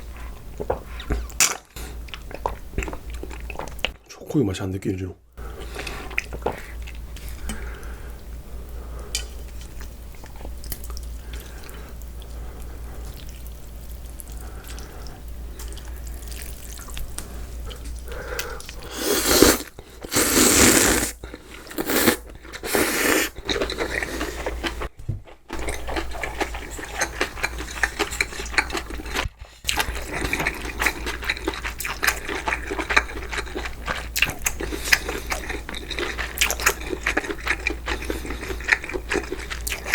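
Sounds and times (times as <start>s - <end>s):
person chewing and smacking: 0.3s - 4.1s, 9.1s - 39.9s
loud slurps: 18.8s - 24.7s.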